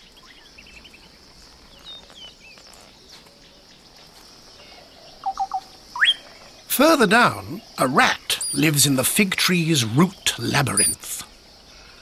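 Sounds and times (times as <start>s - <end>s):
high insect drone: 0.0s - 12.0s
short loud bird calls: 4.6s - 6.5s
thin bird chirps: 4.6s - 6.6s, 7.5s - 9.0s.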